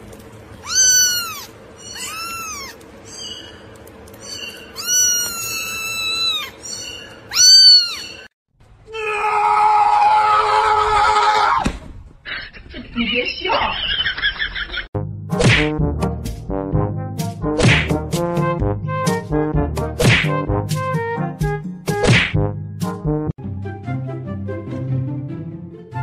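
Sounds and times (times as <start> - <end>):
kitten meowing: 0.6 - 3.4, 4.2 - 8.3.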